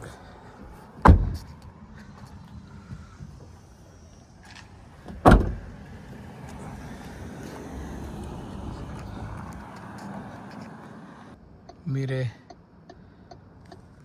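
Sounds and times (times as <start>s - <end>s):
car door slamming: 1.0s - 1.5s, 5.0s - 5.9s.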